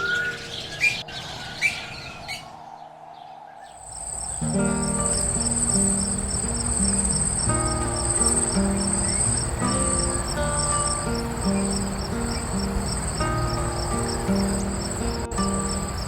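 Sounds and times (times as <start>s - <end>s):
insect trilling high-pitched: 3.9s - 16.0s
background music with held notes: 4.4s - 16.0s.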